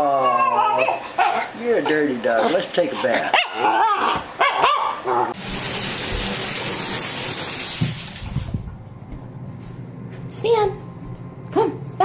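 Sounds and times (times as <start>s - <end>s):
water running into a bathtub: 5.4s - 8.8s.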